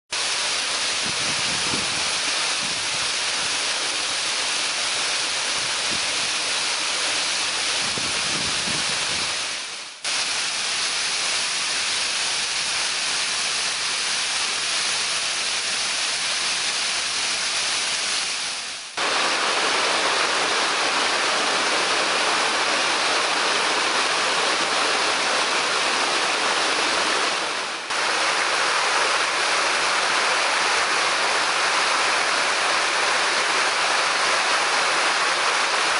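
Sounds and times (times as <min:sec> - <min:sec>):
waterfall roar: 0:00.2 - 0:35.9.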